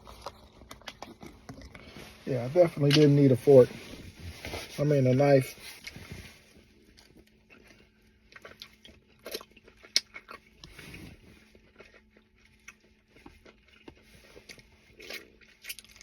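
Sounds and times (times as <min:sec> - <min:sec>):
person chewing meat: 0:00.0 - 0:02.2, 0:05.7 - 0:16.0.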